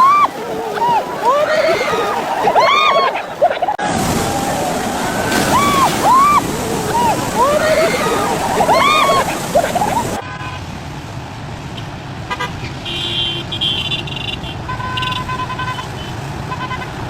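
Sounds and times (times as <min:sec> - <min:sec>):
traffic noise: 0:00.0 - 0:17.0
car horns honking: 0:12.3 - 0:17.0.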